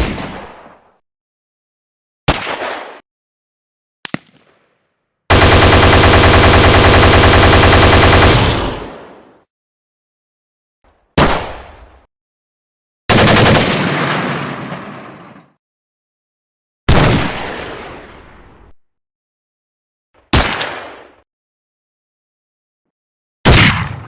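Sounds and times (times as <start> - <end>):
single gunshots: 0.0 - 0.9, 2.3 - 3.0, 8.1 - 9.3, 11.2 - 12.1, 16.9 - 18.1, 20.3 - 21.1, 23.4 - 24.0
machine-gun fire bursts: 5.3 - 9.1, 13.1 - 14.1.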